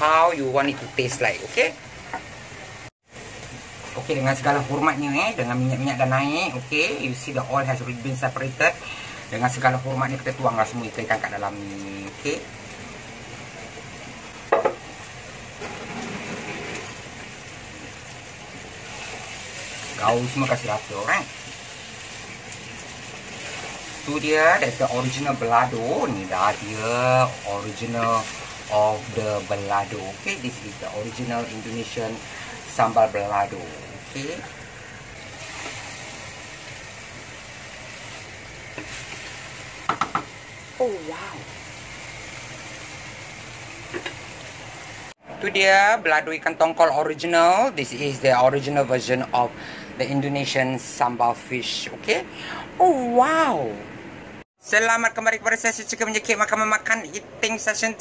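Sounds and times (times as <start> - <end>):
fish sizzling in hot oil: 0.0 - 45.8.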